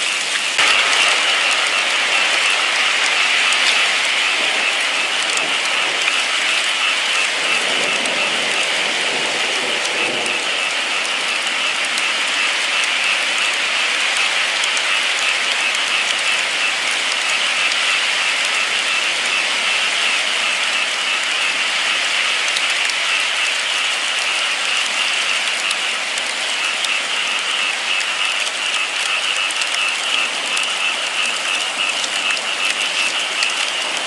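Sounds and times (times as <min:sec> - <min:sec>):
steady rainfall: 0:00.0 - 0:34.0.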